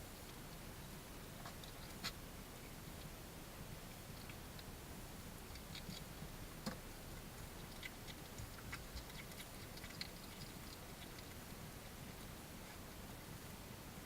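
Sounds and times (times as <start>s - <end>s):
steady hiss: 0.0s - 14.0s
small animal clicks and ticks: 1.4s - 3.2s, 4.0s - 12.8s.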